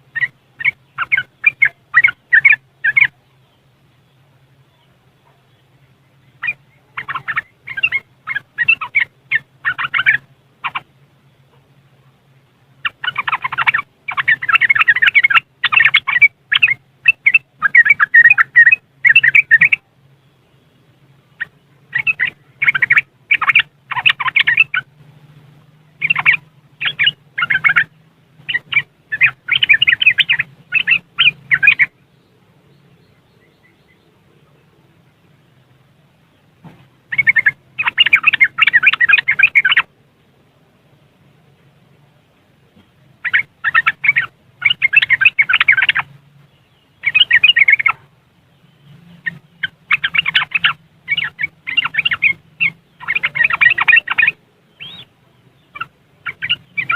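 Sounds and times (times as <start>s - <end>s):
bird chattering call: 0.0s - 3.2s, 4.7s - 11.7s, 12.8s - 19.9s, 21.3s - 25.0s, 26.0s - 34.2s, 37.1s - 39.9s, 43.2s - 46.1s, 46.7s - 56.9s.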